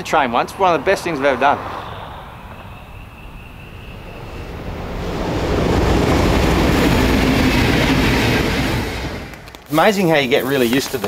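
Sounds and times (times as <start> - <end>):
train rumbling over bridge: 0.0 - 10.3.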